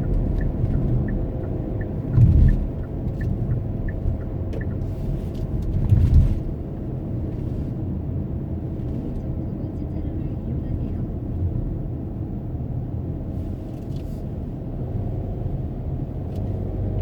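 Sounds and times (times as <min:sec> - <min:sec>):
light regular ticking: 0:00.0 - 0:05.5
car engine and road noise: 0:00.0 - 0:17.0.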